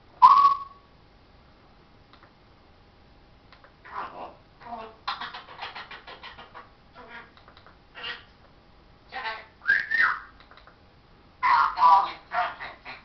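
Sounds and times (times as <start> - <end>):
parrot whistling: 0.2 - 0.8, 9.6 - 10.3
parrot squawking: 3.8 - 7.3, 8.0 - 8.3, 11.4 - 13.0
parrot clicking: 7.1 - 7.8, 10.4 - 10.8.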